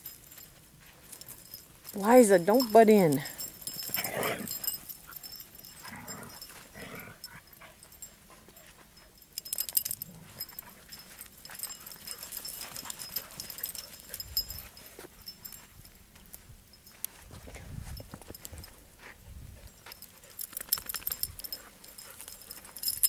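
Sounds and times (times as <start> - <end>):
dogs scuffling on dirt: 0.0 - 23.0
dog vocal sounds: 2.7 - 8.0.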